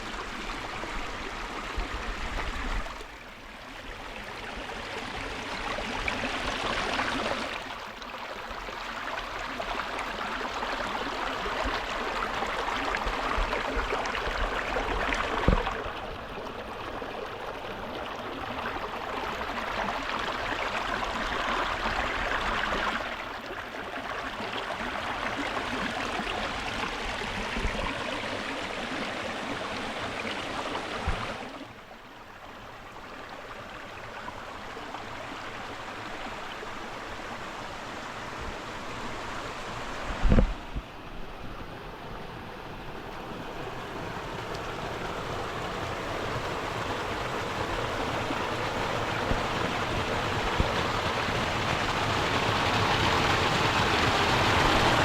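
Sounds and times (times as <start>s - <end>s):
stream rushing over rocks: 0.0s - 3.3s, 3.9s - 55.0s.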